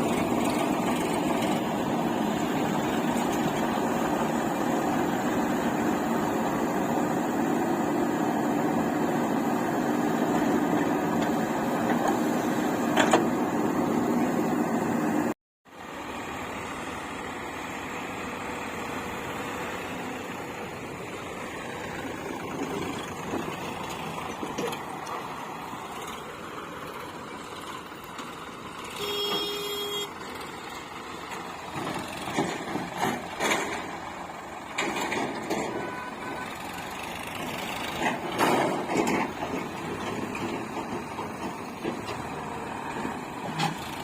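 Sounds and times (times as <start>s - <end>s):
diesel engines running: 0.0s - 44.0s
knocks and clatter: 31.3s - 34.1s, 34.7s - 35.8s, 37.3s - 42.4s.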